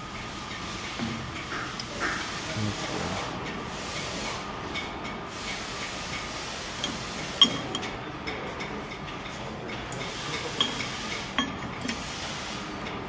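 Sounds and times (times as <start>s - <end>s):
hissing shop background: 0.0s - 13.0s
metal tools clinking: 9.9s - 12.0s.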